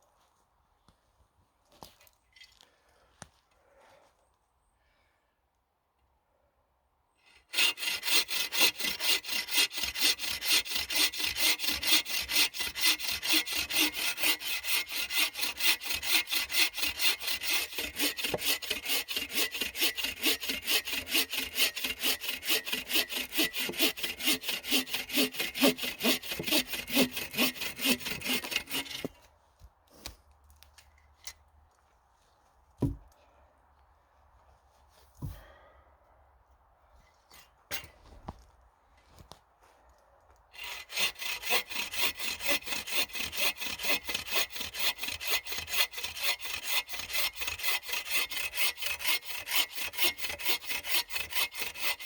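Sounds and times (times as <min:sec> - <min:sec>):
hand saw cutting wood: 0:07.2 - 0:29.3, 0:37.3 - 0:38.0, 0:40.6 - 0:52.0.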